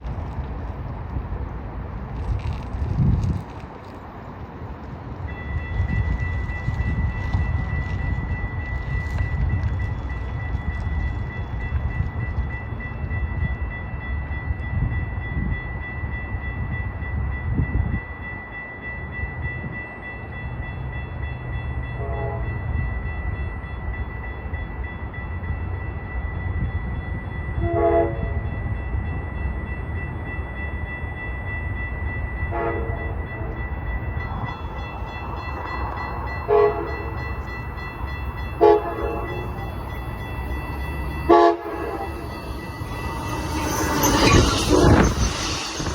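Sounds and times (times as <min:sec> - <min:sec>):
freight train rumbling: 0:00.0 - 0:45.9
locomotive horn short blasts: 0:41.3 - 0:42.2.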